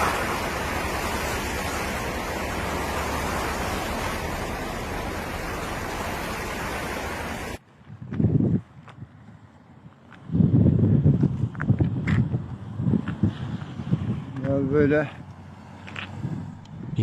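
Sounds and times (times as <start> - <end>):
steady rushing noise: 0.0 - 7.6.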